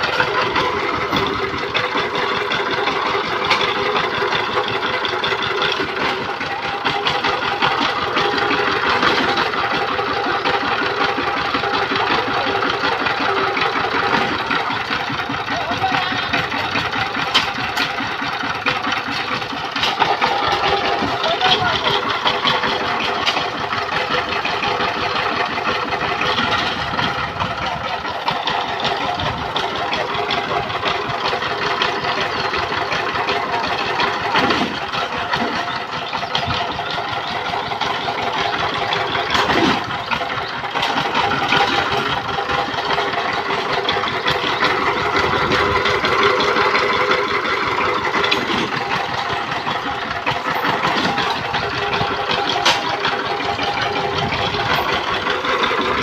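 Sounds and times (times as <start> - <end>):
diesel tiller engine running: 0.0 - 56.0.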